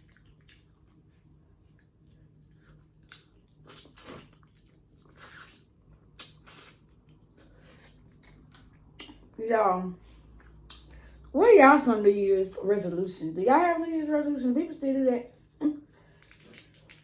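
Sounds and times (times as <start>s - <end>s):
chewing and wet mouth sounds: 0.0s - 9.4s, 10.1s - 11.4s, 15.8s - 17.0s.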